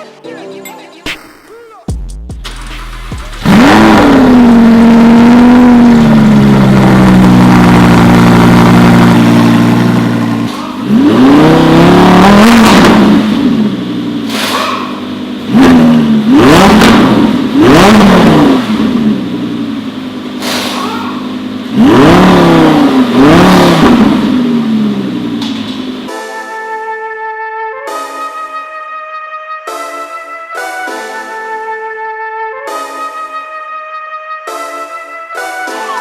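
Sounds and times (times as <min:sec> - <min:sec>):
sports car engine revving: 0:02.4 - 0:26.1.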